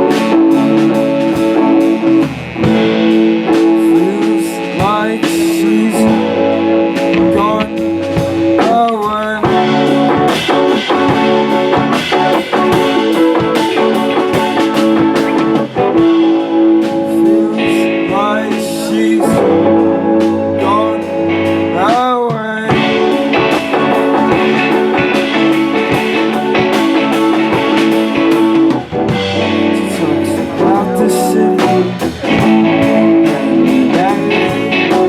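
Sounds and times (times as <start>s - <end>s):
electric guitar with bent notes: 0.0s - 35.0s
live rock band playing: 0.0s - 35.0s.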